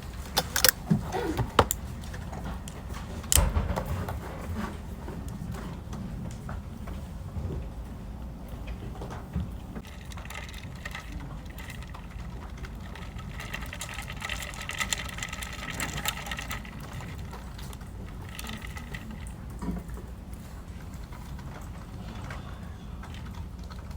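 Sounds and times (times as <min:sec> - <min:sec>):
rapid mechanical clicking: 0:00.0 - 0:04.4, 0:09.8 - 0:23.9
faint whir of office equipment: 0:00.0 - 0:23.9.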